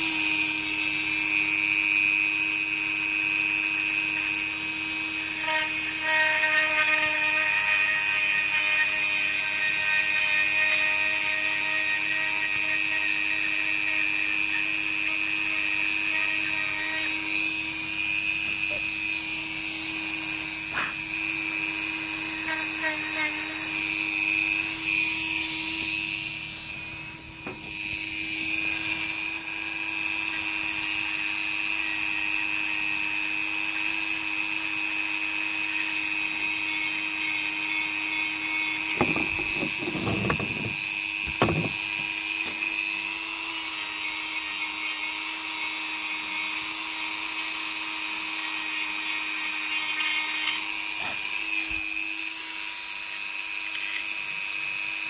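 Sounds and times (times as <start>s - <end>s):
power tool high whine: 0.0s - 55.0s
short knocks: 38.9s - 42.0s.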